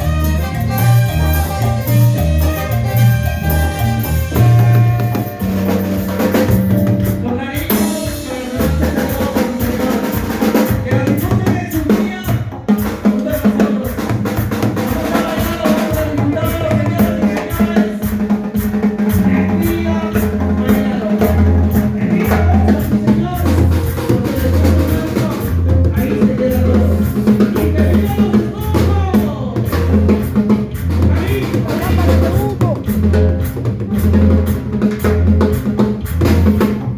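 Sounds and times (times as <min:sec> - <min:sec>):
latin dance band music: 0:00.0 - 0:36.9.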